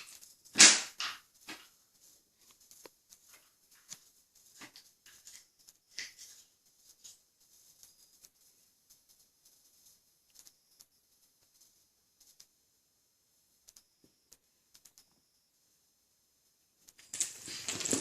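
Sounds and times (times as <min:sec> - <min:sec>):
wooden doll clattering: 0:17.1 - 0:18.0.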